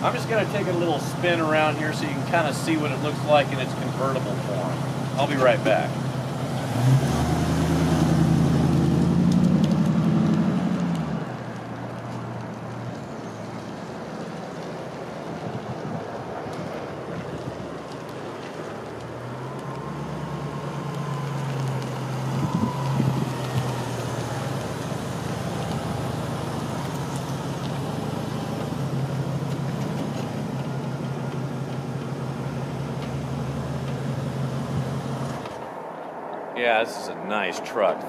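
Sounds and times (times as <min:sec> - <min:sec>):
pickup truck engine driving past: 0:00.0 - 0:35.9.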